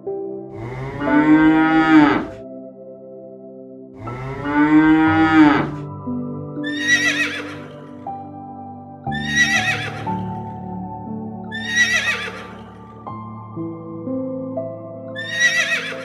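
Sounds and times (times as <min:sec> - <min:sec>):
soft background music: 0:00.0 - 0:16.0
cow mooing: 0:00.6 - 0:02.4, 0:04.1 - 0:05.8
horse whinnying: 0:06.7 - 0:07.8, 0:09.2 - 0:10.1, 0:11.6 - 0:12.6, 0:15.2 - 0:16.0.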